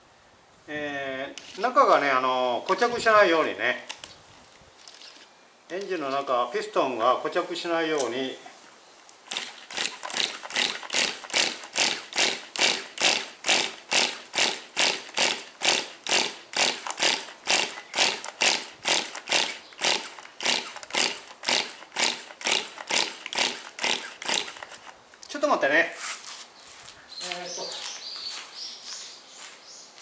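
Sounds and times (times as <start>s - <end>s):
small engine being turned over: 4.8s - 5.3s, 9.3s - 25.0s.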